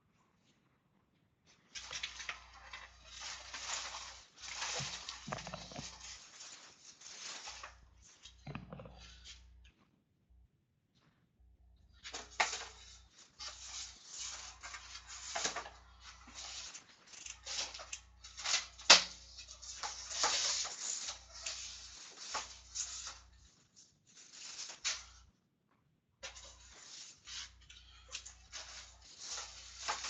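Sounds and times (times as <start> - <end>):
wrappers rustling and crinkling: 1.5 - 8.5, 26.3 - 30.0.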